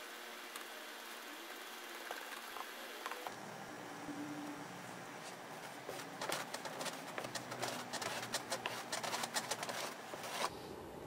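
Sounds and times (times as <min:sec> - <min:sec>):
wooden strip scraping sand: 0:05.8 - 0:10.5.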